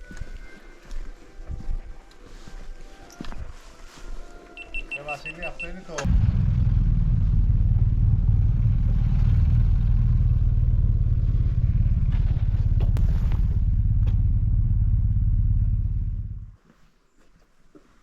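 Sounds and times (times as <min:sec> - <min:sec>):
motorcycle engine rumble: 0:06.0 - 0:16.6.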